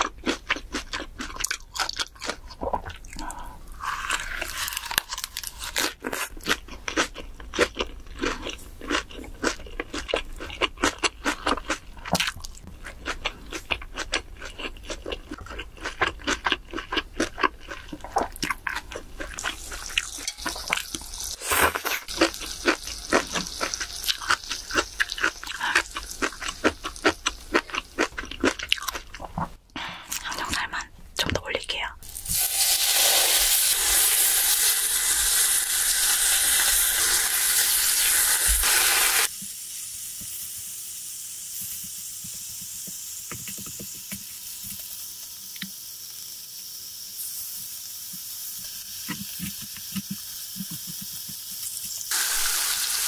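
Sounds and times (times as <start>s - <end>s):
crunchy wet chewing: 0.0s - 30.7s.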